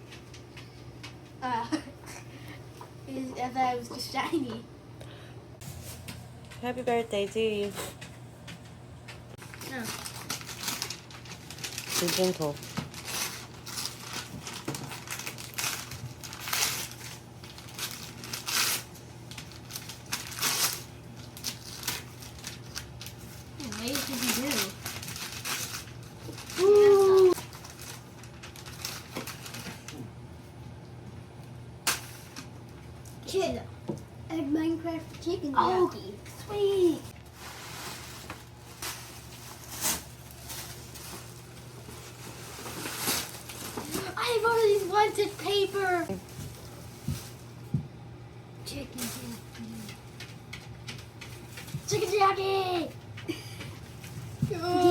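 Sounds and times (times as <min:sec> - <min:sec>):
wrapping paper crinkling and tearing: 0:09.4 - 0:30.1, 0:36.5 - 0:47.6, 0:48.9 - 0:52.8, 0:53.8 - 0:54.9.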